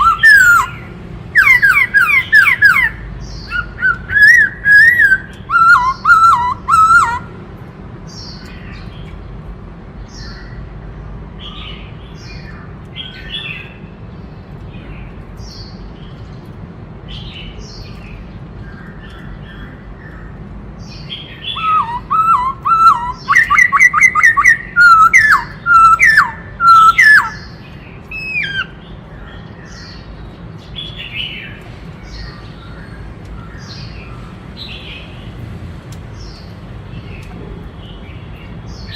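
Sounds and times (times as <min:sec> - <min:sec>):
bird singing whistled notes: 0:00.0 - 0:07.3, 0:20.9 - 0:32.8
bird chirps: 0:00.0 - 0:07.4, 0:17.1 - 0:35.2.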